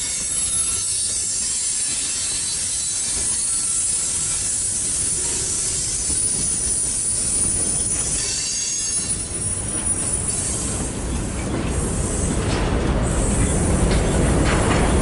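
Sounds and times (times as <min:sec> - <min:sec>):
high wheel squeal: 0:00.0 - 0:11.4
freight train wheels rattling: 0:00.0 - 0:15.0.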